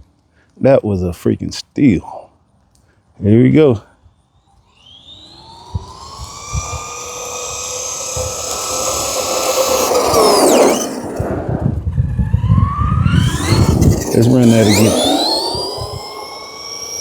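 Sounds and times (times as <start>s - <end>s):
electric motor whine: 4.4s - 17.0s.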